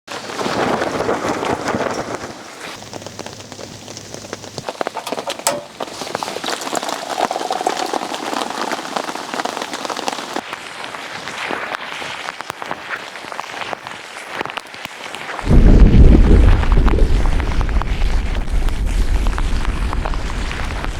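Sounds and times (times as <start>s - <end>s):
rain pattering: 0.1s - 20.9s
loud low rumble: 15.4s - 20.9s.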